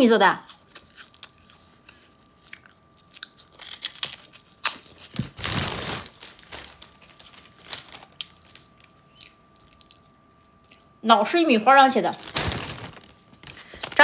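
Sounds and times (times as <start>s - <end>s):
plastic packaging crinkling: 3.7s - 8.9s, 12.0s - 14.0s.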